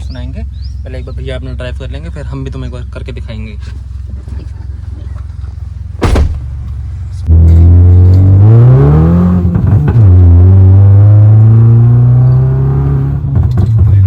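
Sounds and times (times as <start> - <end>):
car engine accelerating: 4.1 - 14.0
sharp exhaust bang: 6.0 - 6.6.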